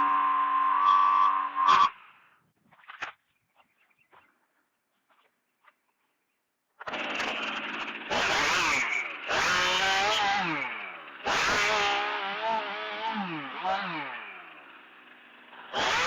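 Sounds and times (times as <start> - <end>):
chainsaw revving: 6.8 - 16.0.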